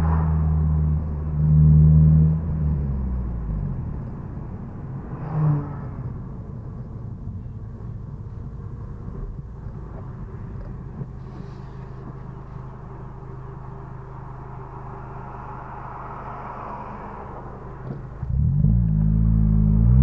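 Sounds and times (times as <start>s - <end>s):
passing car rushing: 0.0s - 6.8s, 13.9s - 20.0s
car engine hum and idle: 0.0s - 20.0s.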